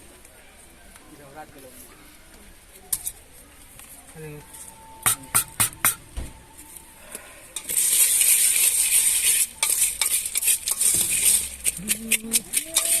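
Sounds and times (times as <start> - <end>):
puffed rice rustling: 6.8 - 13.0
spoon clinking on metal container: 9.6 - 13.0.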